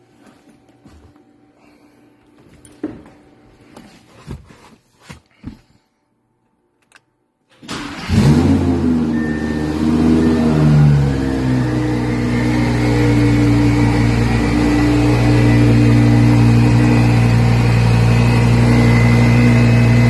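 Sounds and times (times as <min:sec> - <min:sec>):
car engine starting and running: 0:07.5 - 0:20.0.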